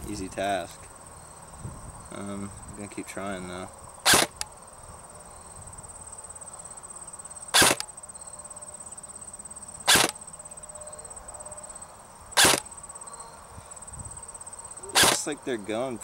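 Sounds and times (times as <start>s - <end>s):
insects chirring: 0.0s - 16.0s
airsoft rifle shots: 4.0s - 4.4s, 7.5s - 7.9s, 9.9s - 10.2s, 12.4s - 12.7s, 14.9s - 15.3s.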